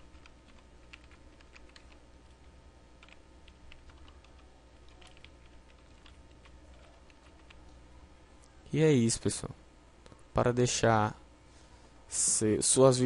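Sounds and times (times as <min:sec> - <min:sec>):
low steady hum: 0:00.0 - 0:13.0
typing on computer keyboard: 0:00.1 - 0:02.0, 0:03.0 - 0:07.6.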